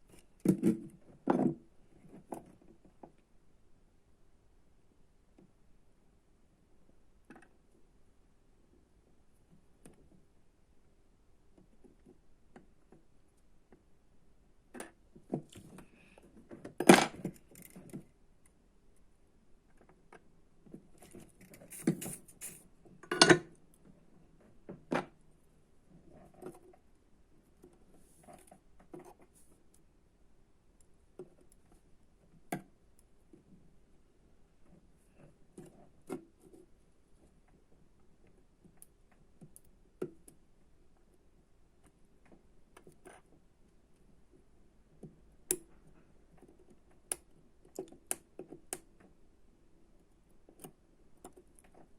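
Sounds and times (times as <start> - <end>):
tools clicking and knocking: 21.0 - 23.5.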